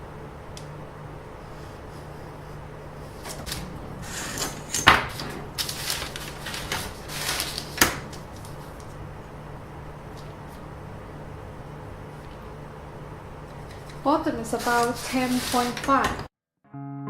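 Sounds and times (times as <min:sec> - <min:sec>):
ruler rustling: 0:03.3 - 0:09.0.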